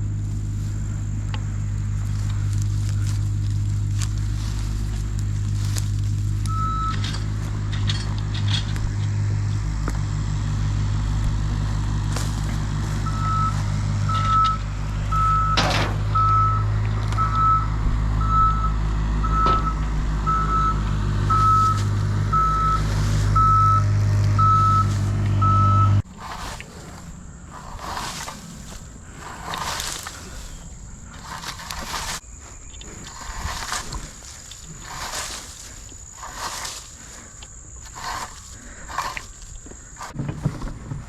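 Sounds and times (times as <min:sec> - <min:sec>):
machine engine running: 0:00.0 - 0:32.2, 0:32.9 - 0:40.2
backup alarm beeping: 0:06.4 - 0:07.3, 0:13.0 - 0:26.0.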